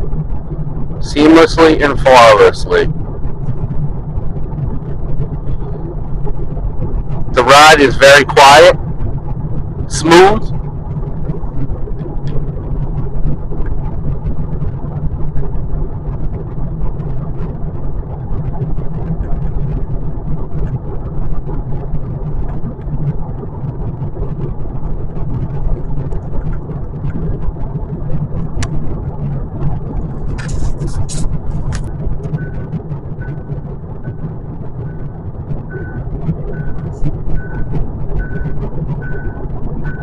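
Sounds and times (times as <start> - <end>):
road and tyre rumble in car: 0.0 - 40.0
faint repeated beep: 34.9 - 40.0.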